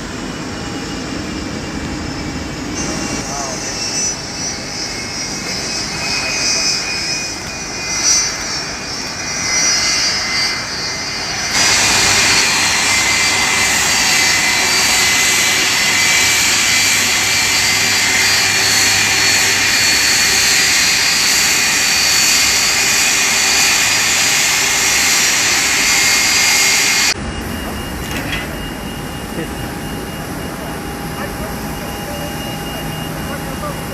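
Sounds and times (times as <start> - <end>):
jet engines whining: 0.0 - 33.9.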